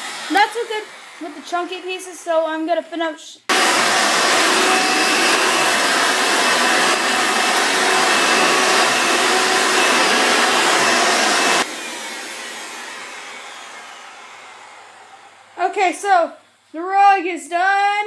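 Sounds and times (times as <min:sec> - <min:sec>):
vacuum cleaner running: 0:00.0 - 0:02.8, 0:03.5 - 0:15.7
motor winding down whine: 0:03.5 - 0:15.6.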